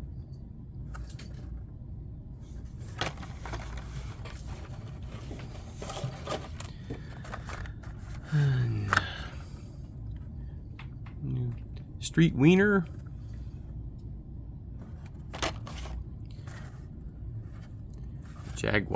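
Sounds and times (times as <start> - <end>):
low steady hum: 0.0 - 18.9
plastic packages clicking and rustling: 2.8 - 9.4, 15.1 - 16.6.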